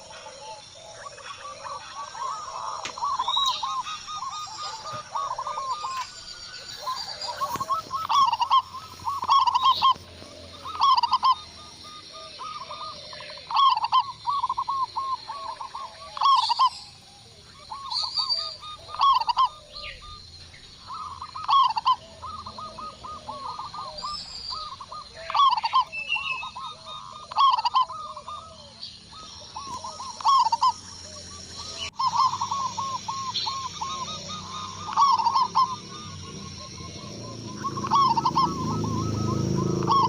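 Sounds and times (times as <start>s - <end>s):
doves cooing: 0.0s - 40.0s.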